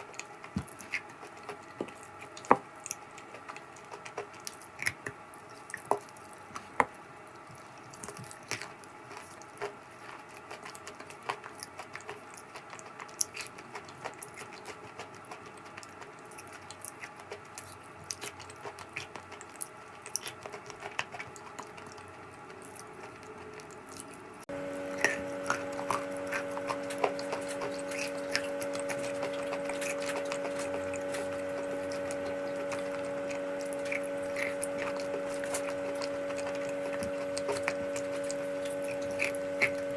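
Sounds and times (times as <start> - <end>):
crunchy clay being chewed: 0.0 - 39.9
steady hum: 20.4 - 39.9.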